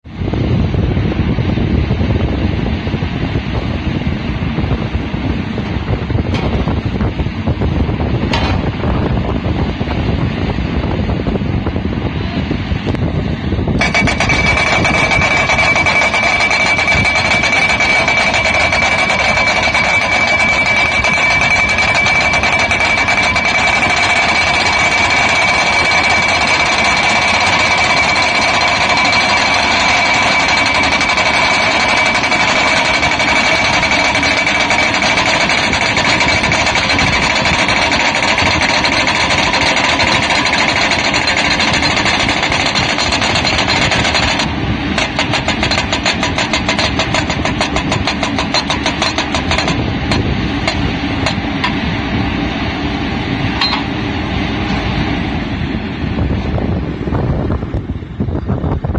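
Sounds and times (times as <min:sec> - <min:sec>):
high ringing tone: 0:13.8 - 0:51.8, 0:53.6 - 0:54.0
pile driver hammering: 0:13.8 - 0:51.8.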